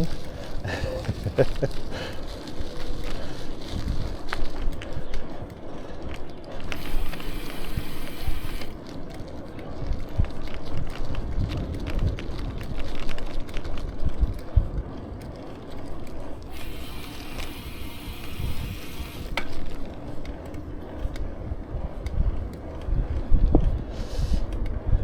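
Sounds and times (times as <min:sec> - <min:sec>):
bicycle ticking and clicking: 0:00.0 - 0:25.0
low road rumble: 0:00.0 - 0:25.0
hiss: 0:06.8 - 0:08.7.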